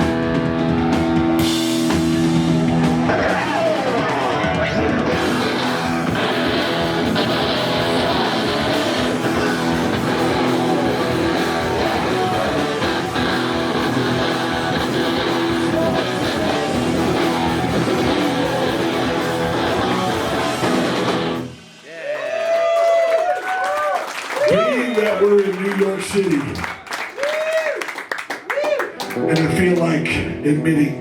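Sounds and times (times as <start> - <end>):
rock band playing live: 0.0 - 21.9, 28.9 - 31.0.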